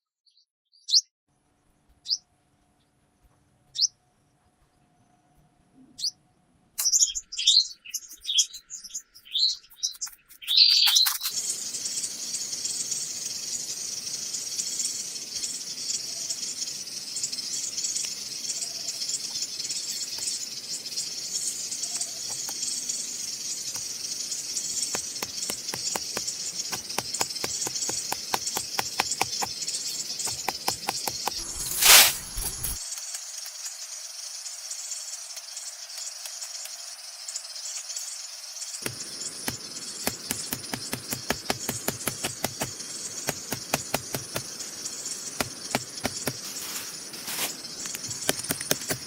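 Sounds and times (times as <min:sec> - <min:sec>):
birds chirping: 0:02.8 - 0:04.0, 0:04.6 - 0:32.8, 0:35.5 - 0:49.0
high-pitched hiss: 0:10.5 - 0:49.0
rapid even ticks: 0:23.7 - 0:32.8, 0:38.8 - 0:46.6, 0:47.6 - 0:49.0.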